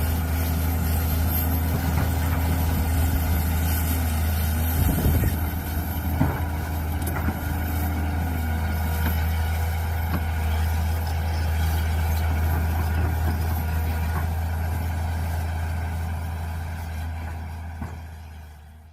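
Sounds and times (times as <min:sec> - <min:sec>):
high whine: 0:00.0 - 0:07.9
excavator engine humming: 0:00.0 - 0:18.9.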